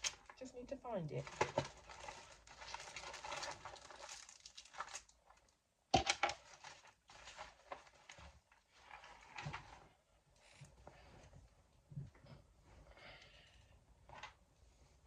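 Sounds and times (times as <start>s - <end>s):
rustling and crinkling in a bag: 1.1s - 5.6s, 6.2s - 11.4s.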